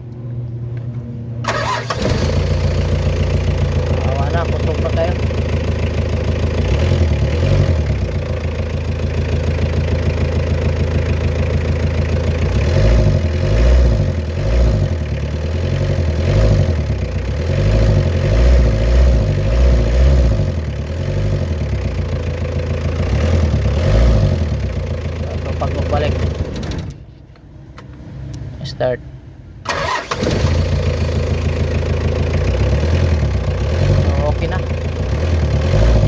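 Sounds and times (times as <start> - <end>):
diesel engine idling: 1.4 - 27.4, 28.6 - 36.0.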